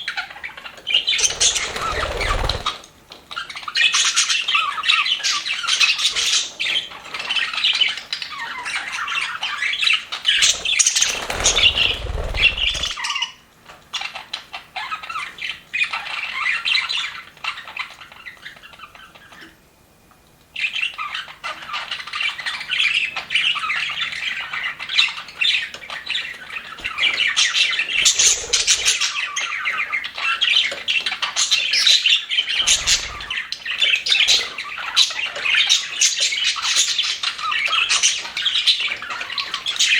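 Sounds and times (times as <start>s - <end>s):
budgerigars chattering: 0.1s - 2.8s, 3.4s - 13.4s, 20.6s - 39.9s.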